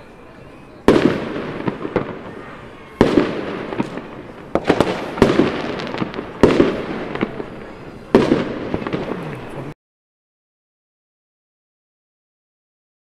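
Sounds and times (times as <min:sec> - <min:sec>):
fireworks bangs with echo: 0:00.0 - 0:09.8
fireworks crackle: 0:00.0 - 0:09.8.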